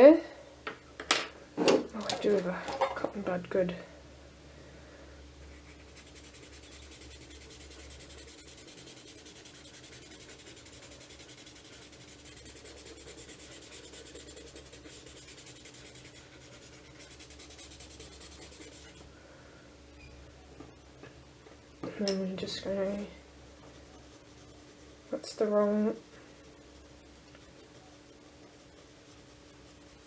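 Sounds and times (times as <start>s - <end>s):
cotton bud rubbing on paper: 5.5s - 19.0s, 23.4s - 30.0s.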